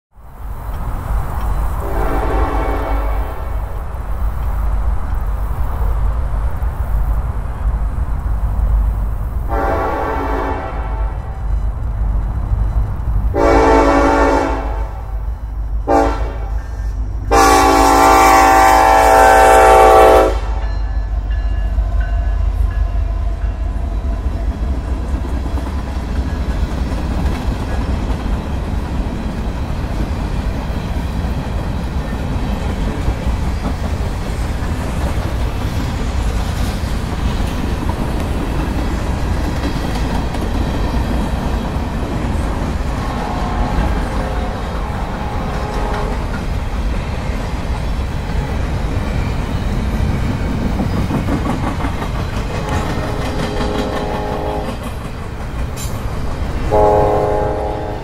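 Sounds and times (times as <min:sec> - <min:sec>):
train horn blasts: 0:01.8 - 0:03.7, 0:09.5 - 0:11.6, 0:13.3 - 0:15.2, 0:15.8 - 0:23.6, 0:45.2 - 0:46.4, 0:52.6 - 0:54.8, 0:56.7 - 0:58.0
crossing signal: 0:09.5 - 0:24.3
train wheels clattering on rails: 0:20.5 - 0:57.0.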